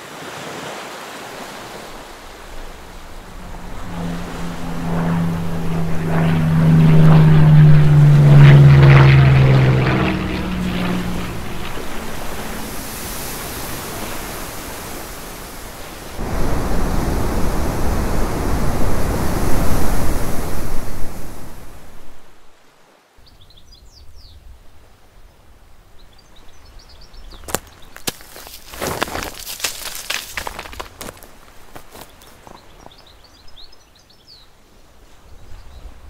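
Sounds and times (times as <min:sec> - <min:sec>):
even rushing noise: 0:01.5 - 0:22.5
propeller aircraft drone: 0:01.6 - 0:22.5.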